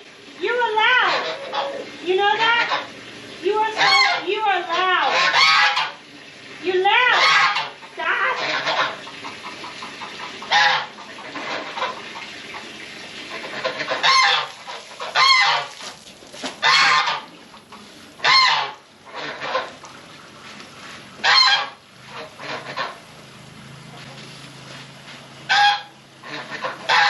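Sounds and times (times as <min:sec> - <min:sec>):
geese honking: 0:00.4 - 0:06.1, 0:06.8 - 0:15.8, 0:16.6 - 0:19.9, 0:21.2 - 0:23.0, 0:25.5 - 0:27.0.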